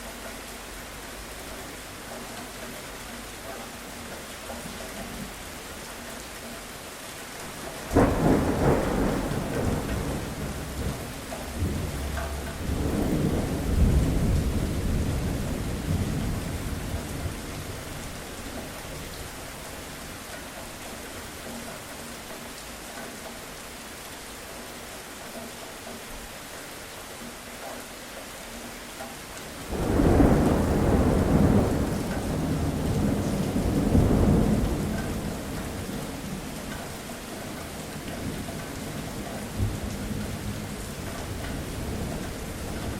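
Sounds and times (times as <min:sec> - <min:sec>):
steady rain falling: 0:00.0 - 0:42.9
thunder rolling: 0:07.9 - 0:18.2, 0:29.6 - 0:36.5.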